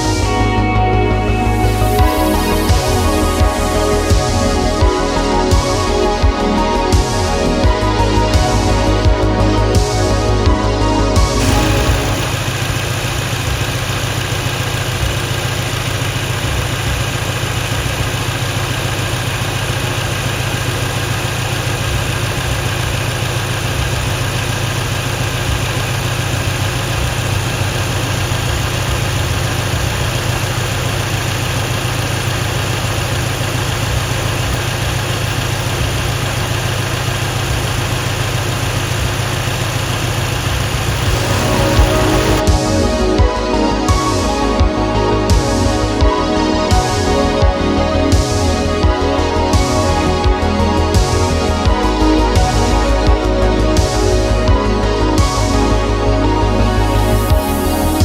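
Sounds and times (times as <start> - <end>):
car engine idling: 10.8 - 43.8.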